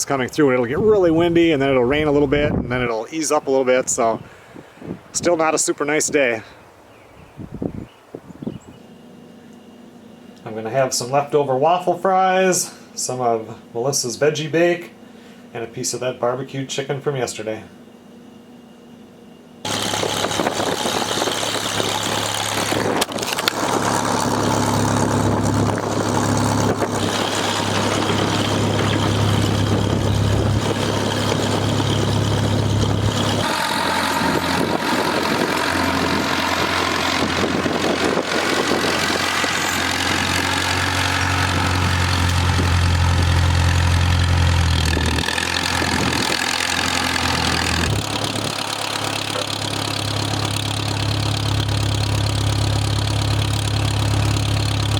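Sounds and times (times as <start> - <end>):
tractor engine running: 19.6 - 54.9.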